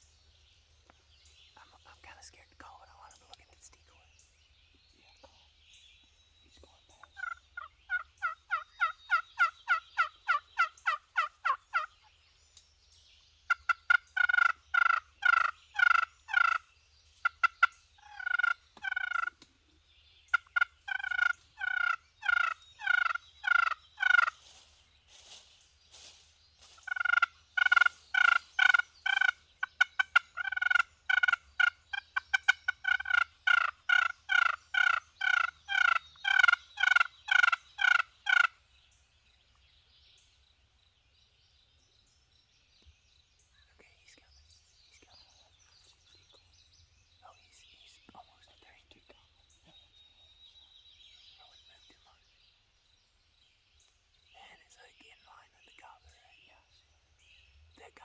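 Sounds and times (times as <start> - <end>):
wild turkey yelping: 7.1 - 12.1, 13.5 - 19.4, 20.3 - 24.5, 26.8 - 38.6.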